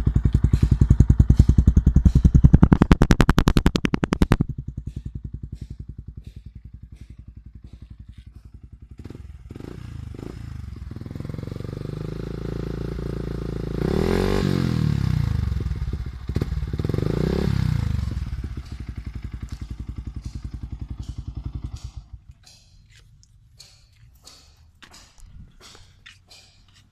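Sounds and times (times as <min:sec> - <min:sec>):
motorcycle engine idling and revving: 0:00.0 - 0:26.9.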